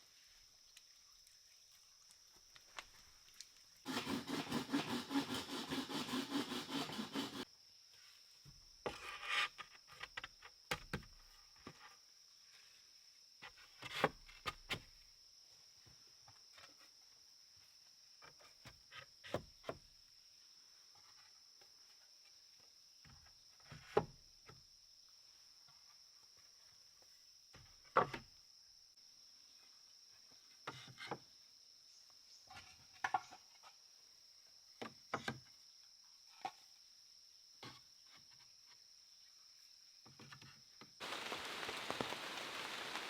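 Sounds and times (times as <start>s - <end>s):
hand saw cutting wood: 3.9s - 7.5s.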